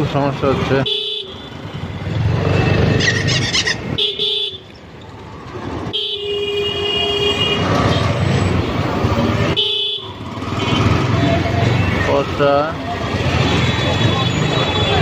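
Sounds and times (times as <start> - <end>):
motorcycle rumbling: 0.0 - 6.2, 7.0 - 15.0
vehicle horns honking: 0.8 - 1.6, 3.9 - 4.7, 5.9 - 8.2, 9.4 - 11.6.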